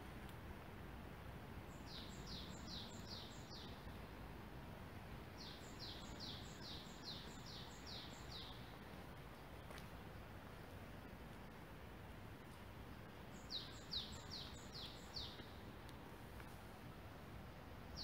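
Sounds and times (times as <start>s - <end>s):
faint background noise: 0.0s - 18.0s
songbird singing: 1.6s - 4.1s, 5.2s - 9.9s, 12.4s - 16.5s.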